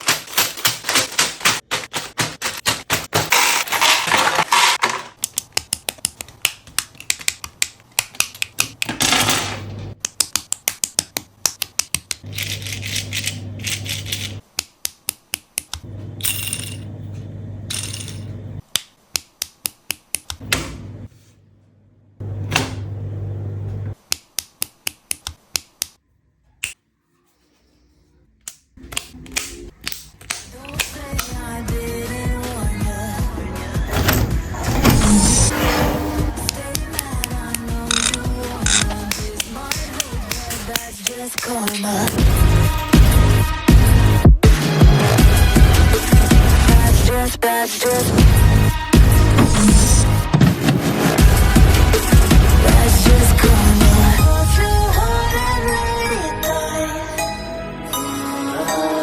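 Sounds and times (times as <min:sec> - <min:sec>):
plastic blocks clicking: 0:00.0 - 0:15.8, 0:36.5 - 0:42.2.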